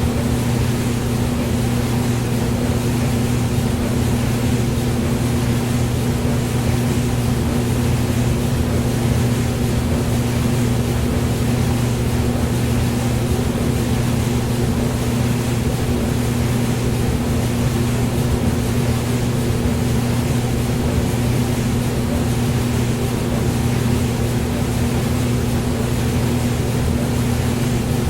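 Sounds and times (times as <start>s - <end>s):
hair dryer running: 0.0s - 6.4s.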